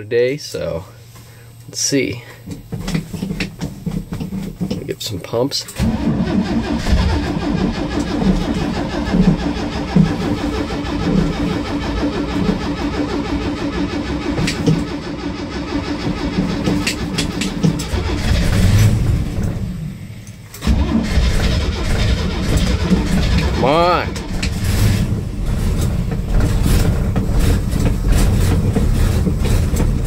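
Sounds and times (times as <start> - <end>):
starter motor cranking engine: 1.3 - 30.0.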